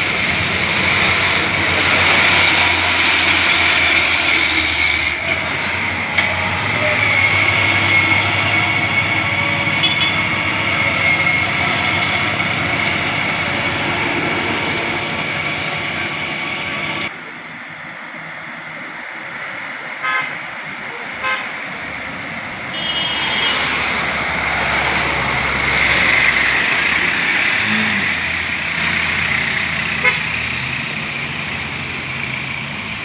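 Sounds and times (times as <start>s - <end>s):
vehicle horn tooting: 8.0s - 10.4s, 22.7s - 23.8s, 30.0s - 30.3s
vehicle passing: 23.2s - 33.0s.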